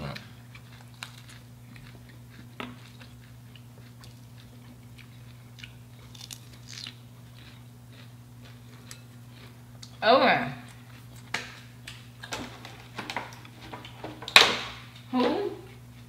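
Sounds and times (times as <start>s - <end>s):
chewing and crunching fried food: 0.0s - 10.0s, 10.6s - 12.4s.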